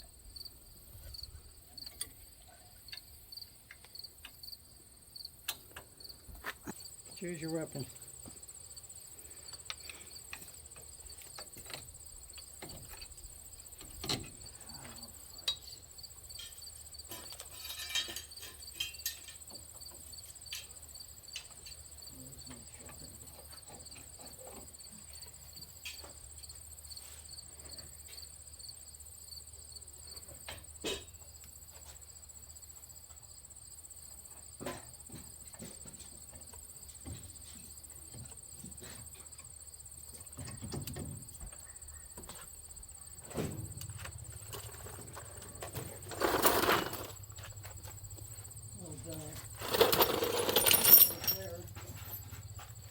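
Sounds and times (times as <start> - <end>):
insects chirring: 0.0 - 52.9
hand tools clinking on metal: 15.4 - 19.6, 44.5 - 47.2, 49.1 - 52.8.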